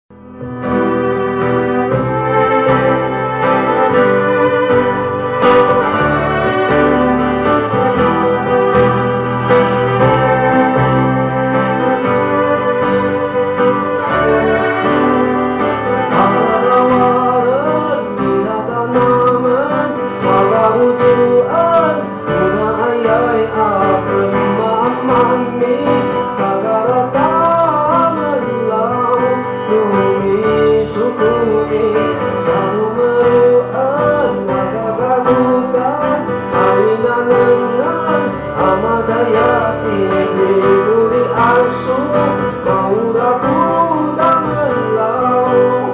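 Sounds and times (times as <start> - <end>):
guitar accompaniment: 0.1 - 45.9
man singing slow melody: 16.0 - 45.9.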